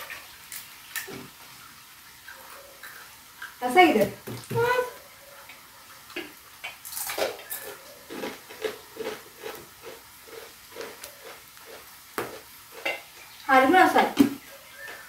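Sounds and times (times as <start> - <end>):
crunchy chips being chewed: 6.6 - 13.0.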